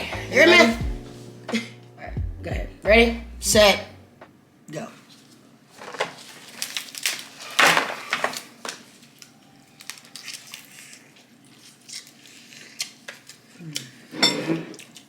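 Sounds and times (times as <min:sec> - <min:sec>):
crab shells cracking: 0:06.4 - 0:14.0.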